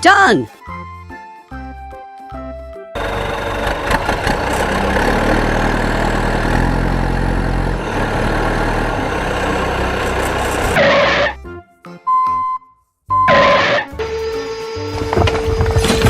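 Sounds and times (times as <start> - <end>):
heavy vehicle engine idling: 3.0 - 10.8.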